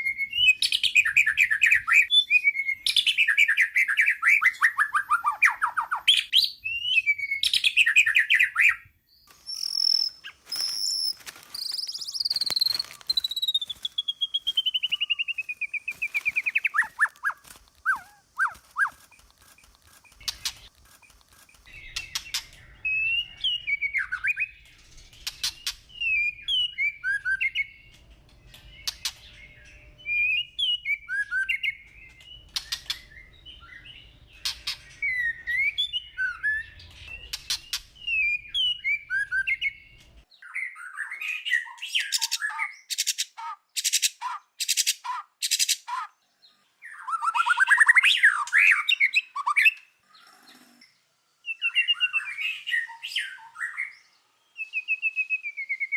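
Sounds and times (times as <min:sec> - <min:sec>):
bird singing whistled phrases: 0:00.0 - 0:19.2, 0:54.6 - 0:55.9
sharp evenly spaced bird notes: 0:00.0 - 0:45.9, 0:51.3 - 0:55.9
buzzy rattling bird trill: 0:09.4 - 0:22.7.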